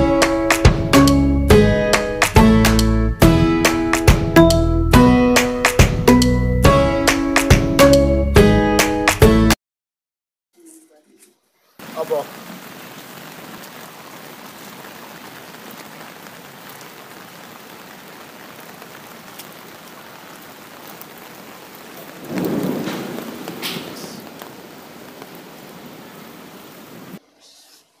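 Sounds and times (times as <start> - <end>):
rain falling: 11.7 - 27.2.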